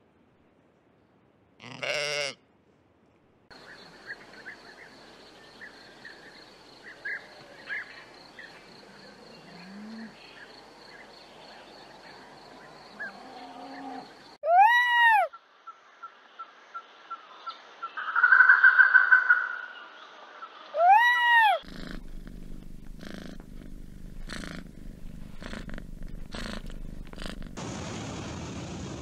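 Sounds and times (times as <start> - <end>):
kitten purring: 21.6 - 27.6.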